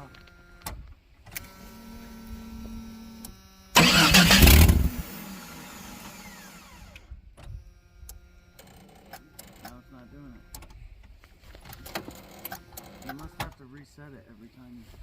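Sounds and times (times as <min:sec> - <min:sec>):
faint steady hum: 0:00.0 - 0:15.0
truck starter cranking: 0:03.7 - 0:07.1, 0:08.6 - 0:09.8, 0:11.7 - 0:13.6.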